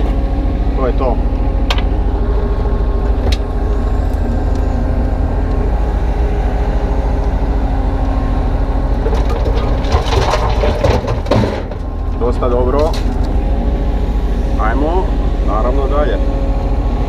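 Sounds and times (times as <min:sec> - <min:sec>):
diesel engine running: 0:00.0 - 0:17.0
bucket scraping broken concrete: 0:09.0 - 0:13.2.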